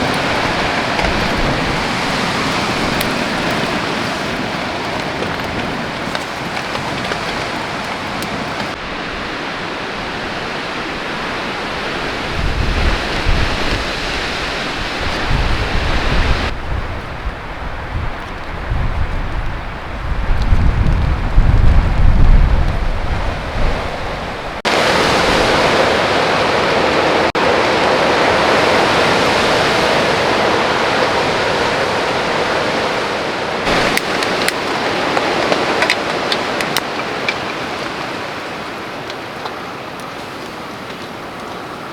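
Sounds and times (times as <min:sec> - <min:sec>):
large raindrops ticking: 0:00.0 - 0:08.8
heavy rain and wind: 0:00.0 - 0:41.9
wind buffeting microphone: 0:00.0 - 0:41.9.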